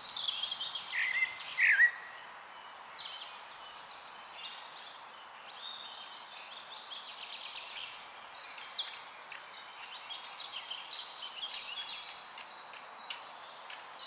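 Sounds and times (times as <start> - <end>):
faint steady hiss: 0.0 - 14.0
songbirds chirping and trilling: 0.0 - 14.0.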